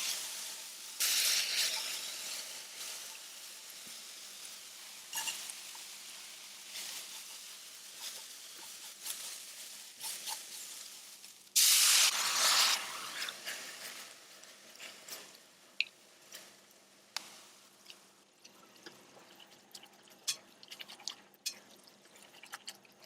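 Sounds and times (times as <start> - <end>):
soft steady cooking hiss: 0.0 - 23.0
loud hiss: 11.6 - 13.5.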